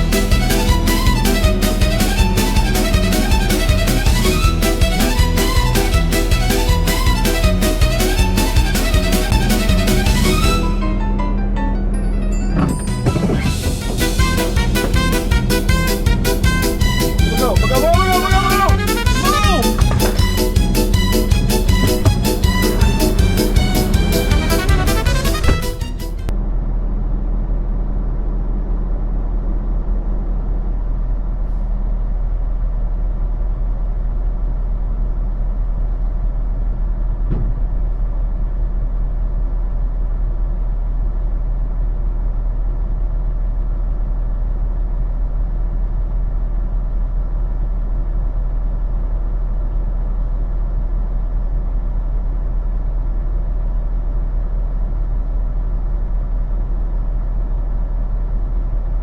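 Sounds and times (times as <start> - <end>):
diesel truck engine rumbling: 0.0 - 59.0.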